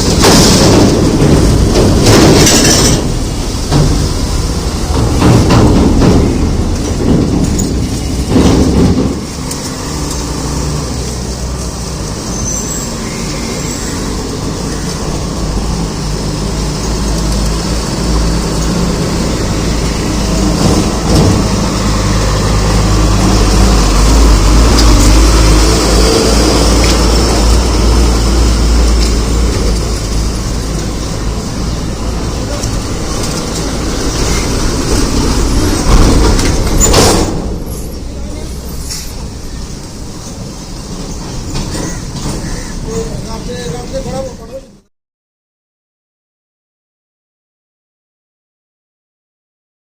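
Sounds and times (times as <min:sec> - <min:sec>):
road traffic: 0:00.0 - 0:44.9
truck diesel engine running: 0:14.0 - 0:44.2.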